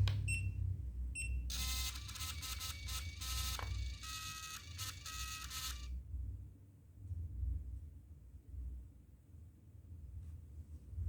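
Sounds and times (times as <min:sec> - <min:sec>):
printer beeps: 0:01.2 - 0:05.9
printer paper-feed motor whirring: 0:01.5 - 0:05.9.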